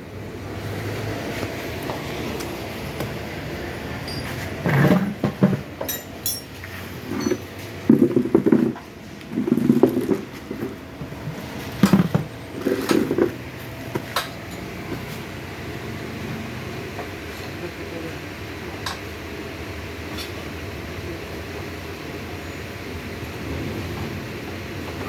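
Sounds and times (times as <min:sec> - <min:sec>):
steady background noise: 0:00.0 - 0:25.0
hand tools knocking and clanking: 0:04.0 - 0:13.4.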